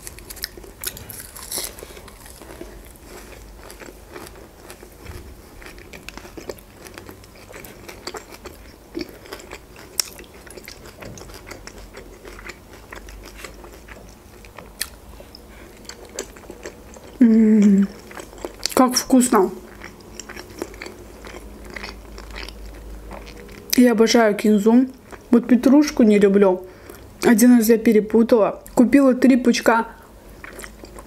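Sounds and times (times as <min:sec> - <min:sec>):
wet chewing: 0:00.0 - 0:23.8, 0:30.4 - 0:31.0.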